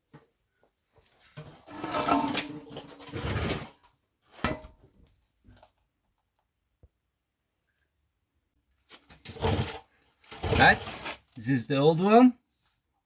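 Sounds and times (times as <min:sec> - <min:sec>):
metal parts scraping and clinking: 0:01.7 - 0:03.2.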